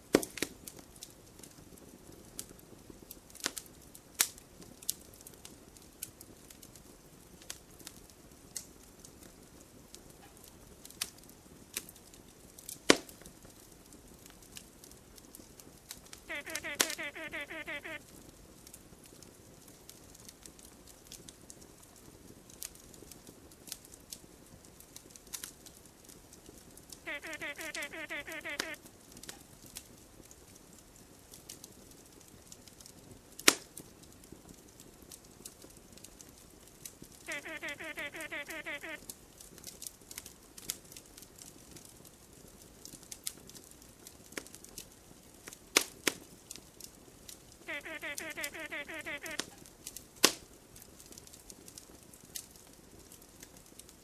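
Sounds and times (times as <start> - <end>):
campfire crackling and popping: 0.0 - 54.0
faint hiss: 14.6 - 19.0, 25.3 - 31.3, 37.0 - 41.4, 45.2 - 51.8.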